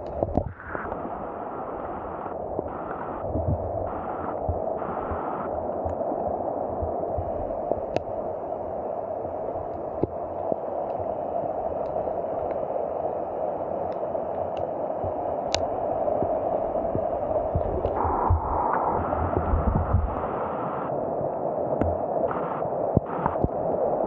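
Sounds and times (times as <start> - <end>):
faint sharp clicks: 7.9 - 8.1, 11.8 - 12.6, 13.9 - 14.7, 15.5 - 16.4.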